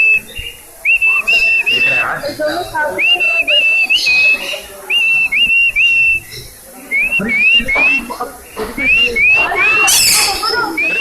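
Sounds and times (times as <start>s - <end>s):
parrot whistling: 0.0s - 2.1s, 3.0s - 6.3s, 8.8s - 11.0s.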